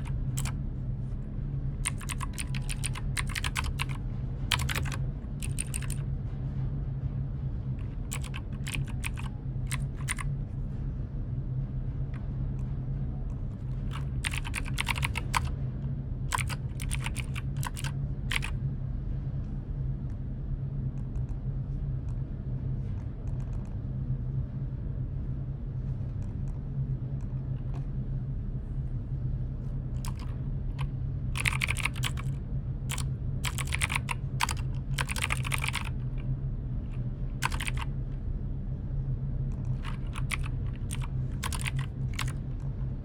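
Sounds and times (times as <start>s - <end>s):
keyboard typing clicks: 0.0s - 0.6s, 1.8s - 6.0s, 7.9s - 10.3s, 13.9s - 15.5s, 16.3s - 18.5s, 30.0s - 36.1s, 37.4s - 37.9s, 39.6s - 42.4s
steady low hum: 0.0s - 43.0s.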